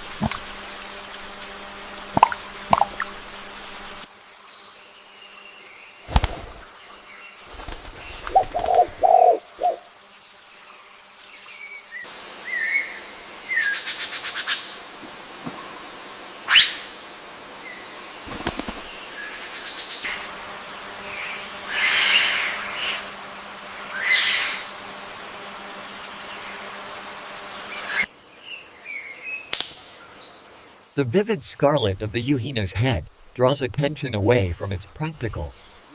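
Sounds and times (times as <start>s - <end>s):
birds calling: 6.0s - 9.9s, 17.6s - 20.2s, 20.9s - 24.9s, 26.2s - 35.9s.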